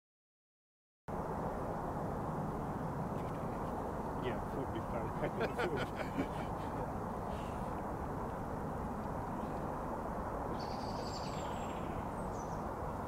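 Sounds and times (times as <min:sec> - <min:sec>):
low outdoor rumble: 0:01.1 - 0:13.0
bird chirping: 0:09.3 - 0:09.7, 0:10.5 - 0:12.7.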